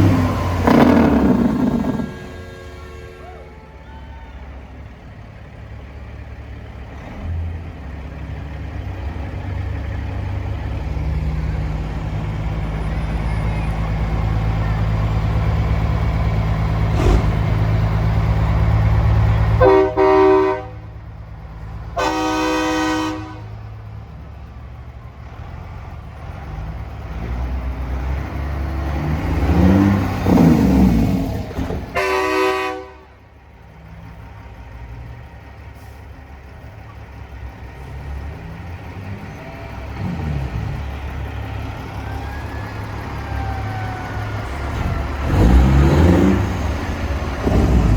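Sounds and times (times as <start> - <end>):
engine accelerating: 0.0 - 3.0, 9.1 - 20.0, 25.2 - 32.0, 37.6 - 47.9
truck air horn blasts: 0.0 - 4.4, 19.5 - 20.9, 21.9 - 23.6, 31.8 - 33.2
diesel trucks rumbling past: 0.0 - 47.9.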